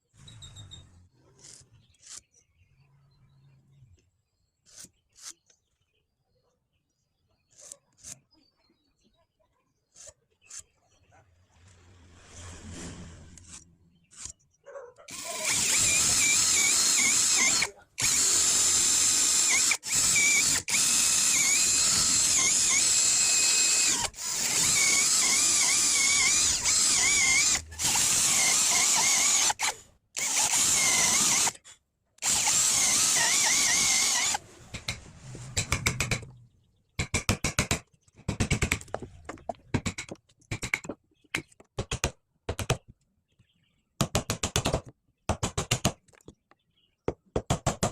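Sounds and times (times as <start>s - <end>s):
power drill whining: 15.1s - 31.6s, 32.2s - 34.4s.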